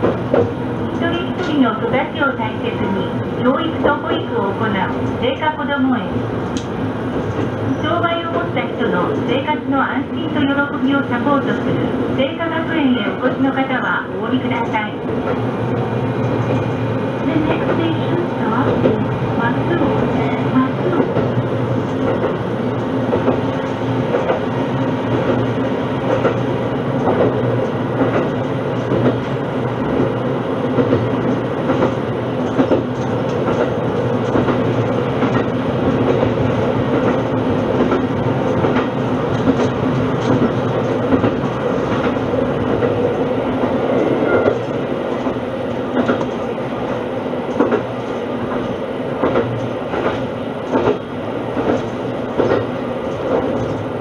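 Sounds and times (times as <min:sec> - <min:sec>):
railcar engine running hum: 0:00.0 - 0:54.0
wheels clicking over rail joints: 0:30.8 - 0:43.8.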